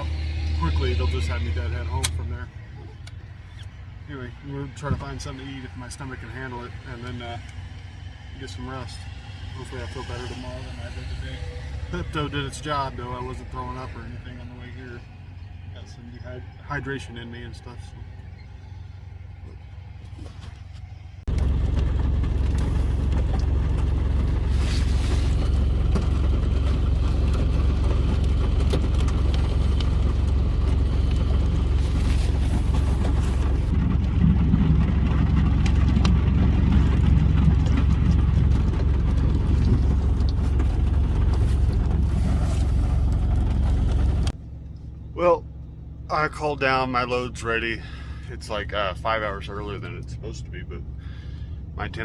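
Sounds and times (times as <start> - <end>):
diesel truck engine rumbling: 0.0 - 52.0.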